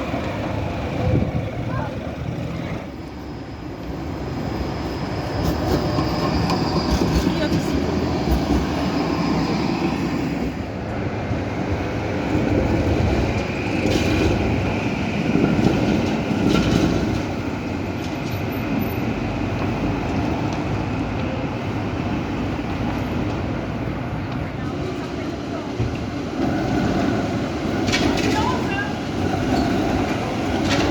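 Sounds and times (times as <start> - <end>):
tram rumbling on rails: 0.0 - 30.9.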